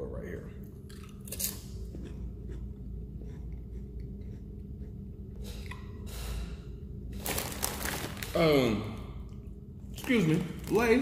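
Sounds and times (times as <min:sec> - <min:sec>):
steady low hum: 0:00.0 - 0:11.0
man chewing potato chips: 0:00.7 - 0:05.9, 0:07.2 - 0:08.4
breathing through the nose: 0:05.4 - 0:06.8.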